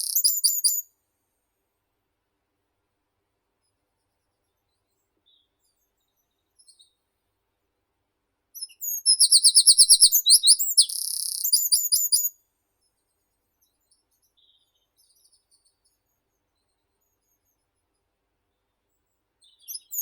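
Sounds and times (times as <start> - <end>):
faint bird chirps: 0.0 - 0.9, 3.6 - 7.1, 8.6 - 20.0
songbird singing: 0.0 - 0.9, 8.6 - 12.4, 19.4 - 20.0.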